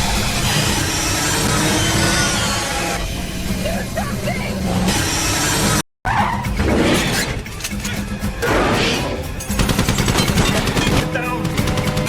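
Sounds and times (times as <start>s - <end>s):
action movie music: 0.0s - 12.0s
gunfire: 9.6s - 12.0s.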